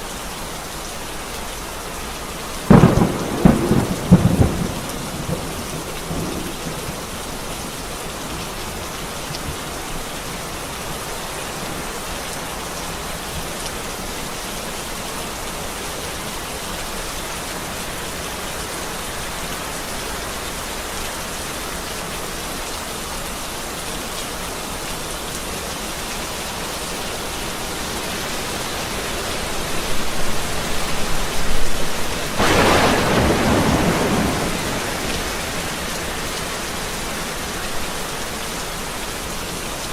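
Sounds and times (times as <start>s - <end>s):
steady rain falling: 0.0s - 39.9s
loud peal of thunder: 2.7s - 6.8s, 32.4s - 36.2s
thunder rumbling: 2.7s - 7.2s, 29.5s - 38.1s.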